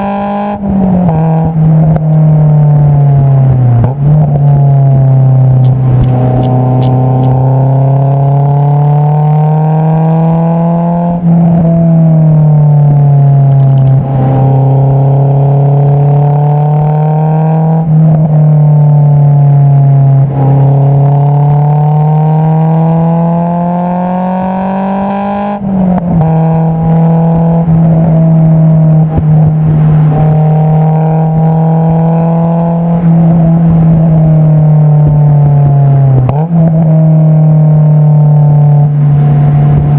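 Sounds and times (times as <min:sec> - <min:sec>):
car exhaust while driving: 0:00.0 - 0:39.9.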